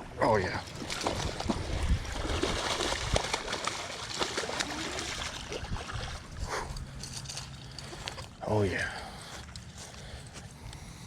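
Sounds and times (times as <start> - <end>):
water splashing and trickling: 0.5 - 8.4.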